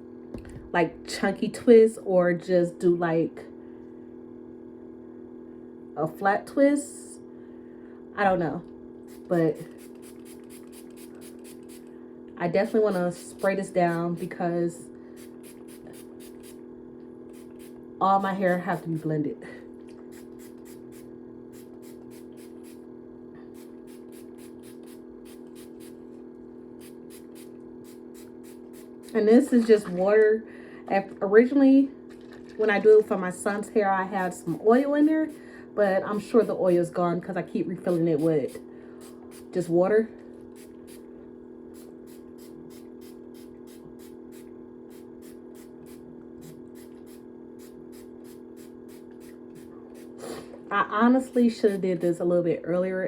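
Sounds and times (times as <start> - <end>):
steady low hum: 0.0 - 53.0
spray bottle hissing: 9.1 - 11.9, 12.7 - 14.4, 15.2 - 16.6, 17.3 - 19.1, 20.0 - 22.8, 23.5 - 26.1, 26.8 - 29.3, 37.9 - 39.6, 40.5 - 41.0, 41.8 - 50.6.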